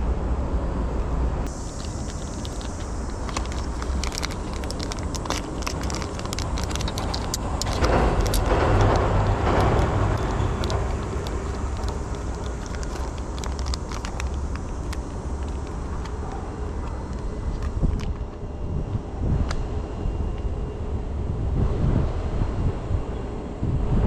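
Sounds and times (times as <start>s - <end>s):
steady low rumble: 0.0s - 24.0s
road vehicle passing: 1.2s - 18.0s.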